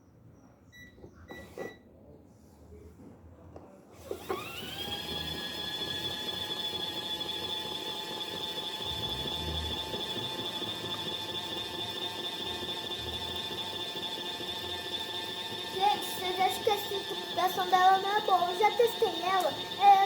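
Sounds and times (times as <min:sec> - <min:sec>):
spin motor whine: 0:04.0 - 0:20.0.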